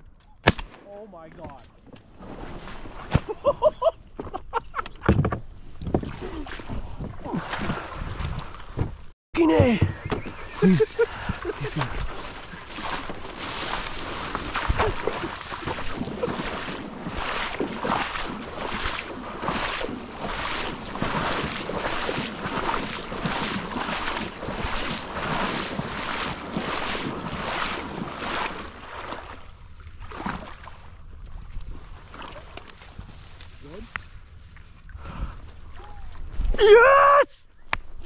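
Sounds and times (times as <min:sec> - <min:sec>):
rhythmic water splashing: 0:09.9 - 0:31.0.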